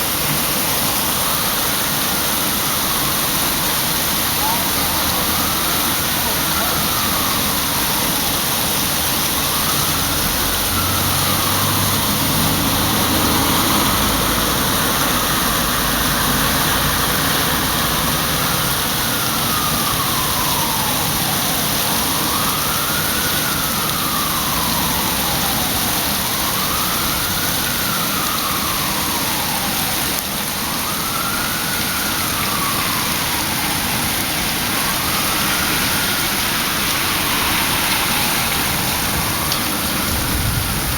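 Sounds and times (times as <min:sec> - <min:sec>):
emergency siren wailing: 0:00.0 - 0:40.9
heavy rain pouring: 0:00.0 - 0:40.9.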